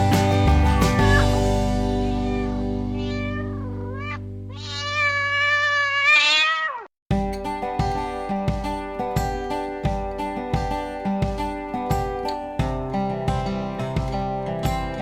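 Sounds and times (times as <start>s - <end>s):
background music: 0.0s - 4.5s, 7.1s - 15.0s
acoustic guitar music: 0.0s - 4.6s, 7.1s - 15.0s
cat meowing: 0.8s - 1.4s, 2.0s - 6.9s.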